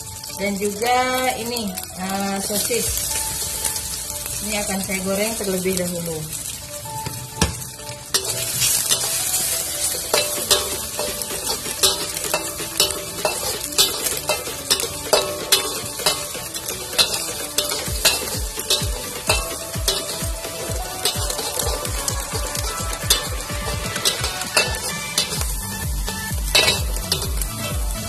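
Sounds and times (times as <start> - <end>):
food sizzling in hot oil: 0.0 - 28.0
metal spatula scraping a wok: 7.5 - 28.0.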